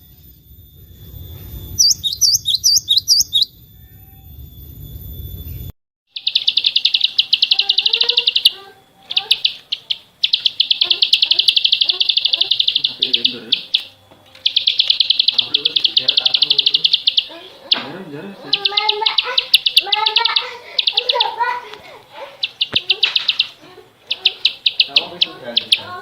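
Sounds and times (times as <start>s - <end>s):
faint lower chirping: 0.0s - 26.0s
songbird high dry trill: 1.7s - 3.5s, 6.1s - 17.8s, 18.4s - 21.6s, 22.4s - 26.0s.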